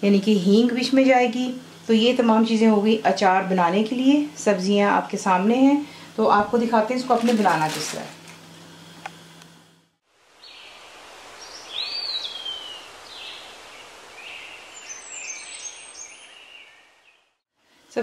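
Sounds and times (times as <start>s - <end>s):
outdoor hiss: 0.0s - 18.0s
bird chirps: 11.4s - 17.3s.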